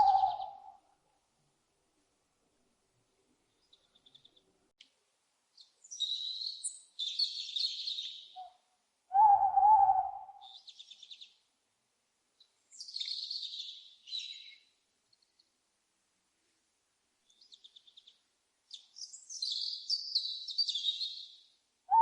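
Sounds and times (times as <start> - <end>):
bird trill: 0.0 - 0.8, 5.8 - 11.3, 12.8 - 14.6, 18.7 - 22.0
birds chirping: 0.0 - 0.8, 12.4 - 14.7
lower bird call: 0.0 - 0.8, 5.9 - 11.3, 19.0 - 22.0.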